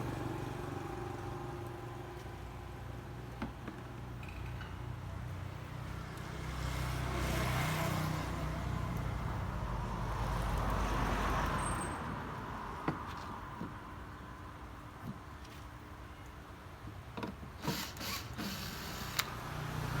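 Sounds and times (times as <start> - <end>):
vehicle passing: 19.3 - 20.0.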